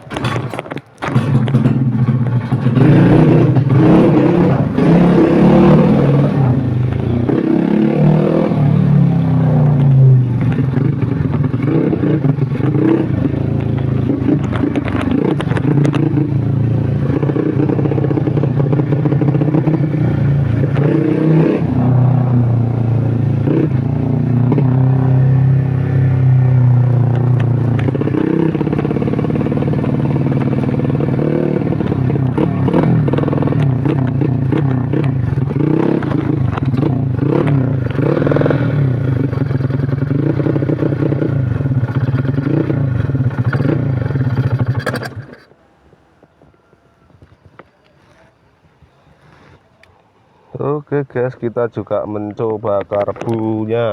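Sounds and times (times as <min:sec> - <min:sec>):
clattering: 0:00.0 - 0:03.8
motorcycle engine revving: 0:00.0 - 0:45.6.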